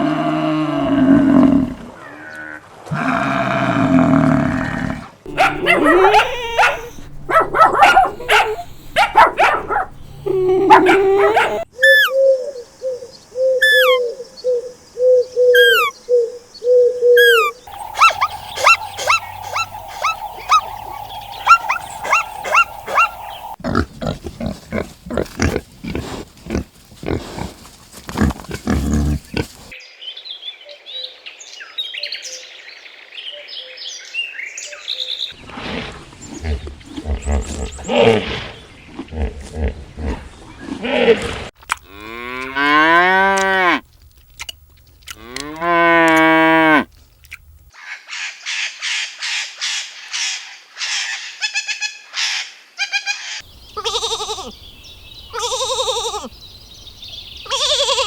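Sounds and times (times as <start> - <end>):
high twittering: 5.3 - 12.2, 17.2 - 23.6
rapid chirping: 5.3 - 12.2, 17.2 - 23.6
repeated pitched animal calls: 5.3 - 27.4, 50.9 - 54.6, 55.3 - 56.4, 57.4 - 58.0.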